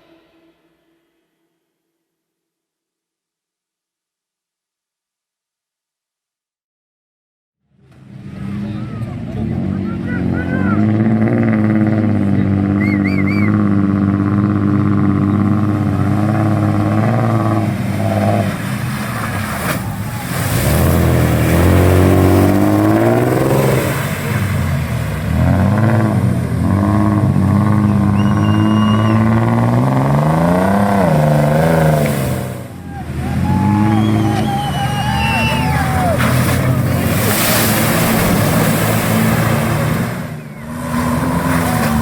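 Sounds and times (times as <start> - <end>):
off-road vehicle engine revving: 7.8 - 42.0
rush of noise: 30.8 - 42.0.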